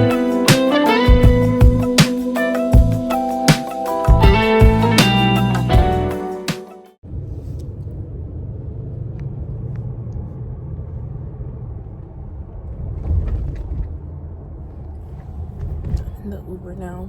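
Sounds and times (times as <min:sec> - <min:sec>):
vehicle road rumble: 0:07.0 - 0:17.0.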